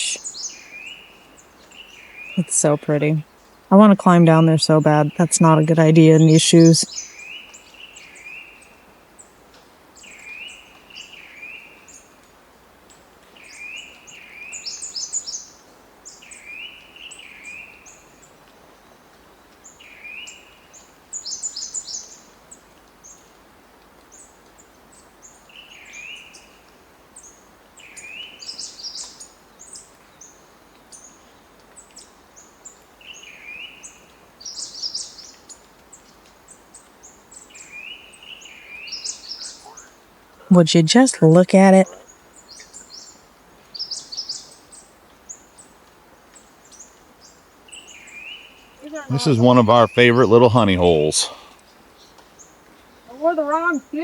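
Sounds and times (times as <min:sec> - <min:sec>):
birds chirping: 0:00.0 - 0:01.0, 0:01.6 - 0:07.4, 0:37.3 - 0:44.6, 0:47.7 - 0:54.0.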